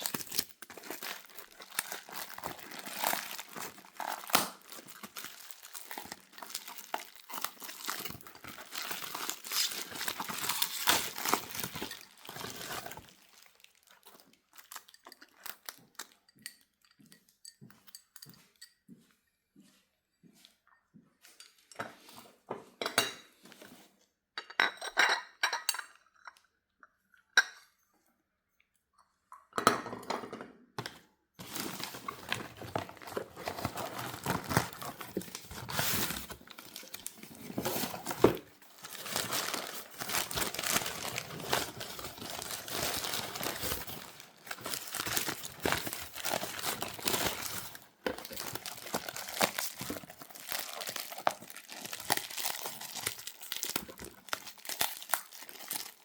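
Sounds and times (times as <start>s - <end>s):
packaging rustling: 0.0s - 16.1s, 31.4s - 56.0s.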